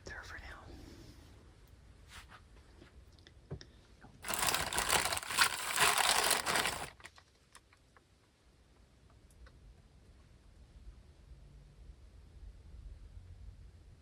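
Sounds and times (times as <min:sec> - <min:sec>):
plastic or paper crinkling: 0:04.2 - 0:07.4.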